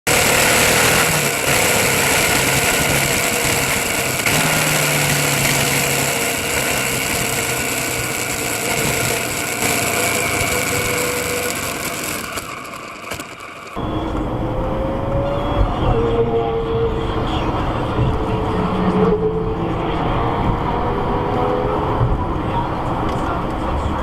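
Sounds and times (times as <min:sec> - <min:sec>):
vehicle engine running: 0:00.0 - 0:16.1
loud rush of noise: 0:00.0 - 0:24.0.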